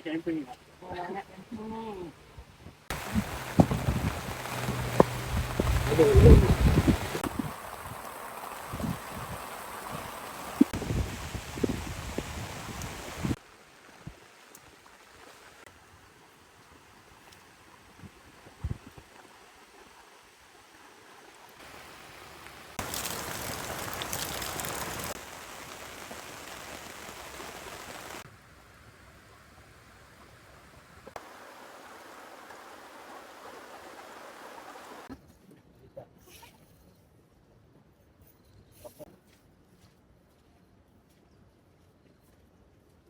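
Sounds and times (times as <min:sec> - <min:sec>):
heavy rain hissing: 0:02.9 - 0:14.4, 0:21.5 - 0:35.1.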